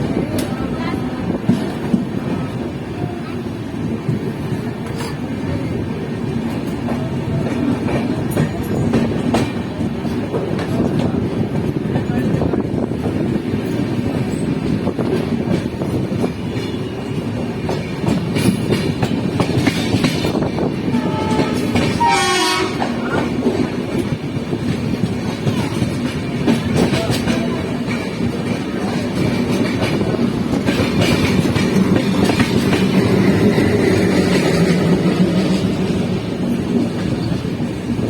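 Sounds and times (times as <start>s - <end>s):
train wheels clicking over rail joints: 3.4s - 38.0s
train horn note: 20.9s - 23.0s.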